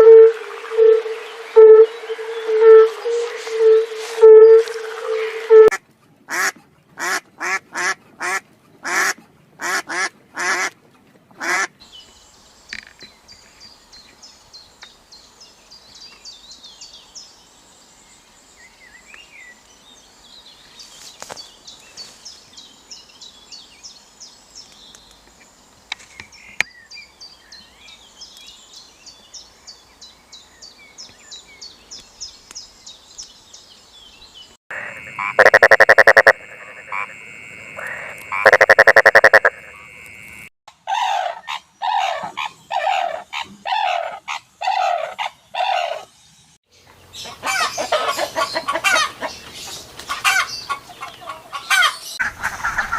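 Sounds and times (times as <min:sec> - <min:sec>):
duck quacking: 0:06.3 - 0:10.7, 0:34.8 - 0:37.1, 0:37.8 - 0:39.8
high repeated chirping: 0:35.1 - 0:37.1, 0:38.3 - 0:39.9.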